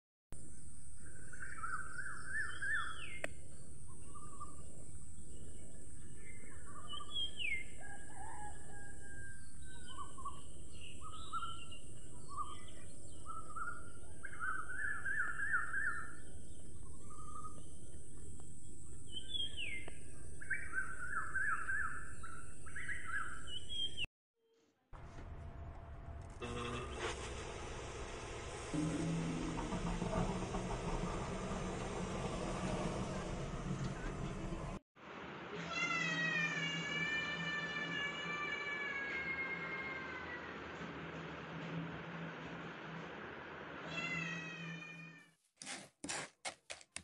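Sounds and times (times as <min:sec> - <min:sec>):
birds singing: 0:01.0 - 0:24.1.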